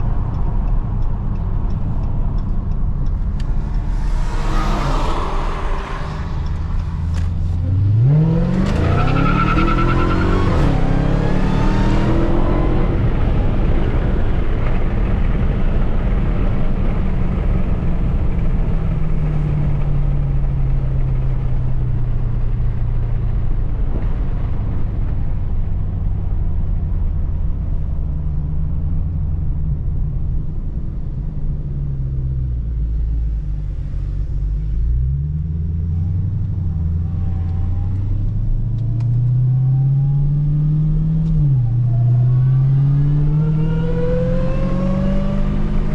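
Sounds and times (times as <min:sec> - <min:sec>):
car engine running and revving: 0:00.0 - 0:45.9
loud rushing noise: 0:02.9 - 0:08.6.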